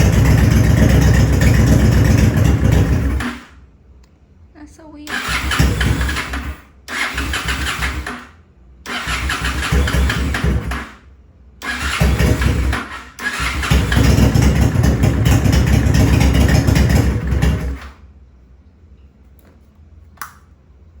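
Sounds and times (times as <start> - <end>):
motorcycle electric starter cranking: 0.0 - 3.6, 5.1 - 11.0, 11.6 - 18.0.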